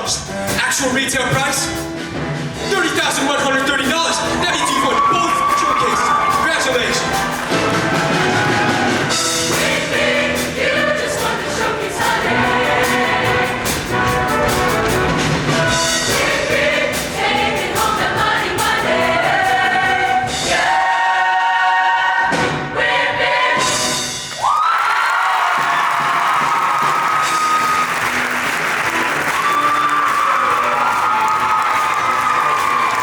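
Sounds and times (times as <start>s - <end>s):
backing band playing: 0.0s - 33.0s
choir singing: 6.8s - 24.2s.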